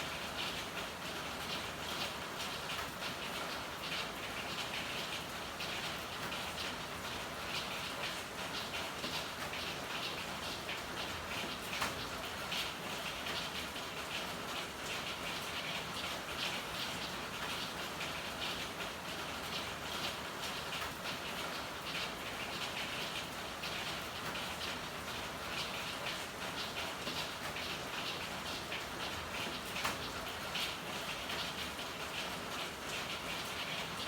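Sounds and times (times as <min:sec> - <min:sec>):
rain pattering: 0:00.0 - 0:34.0.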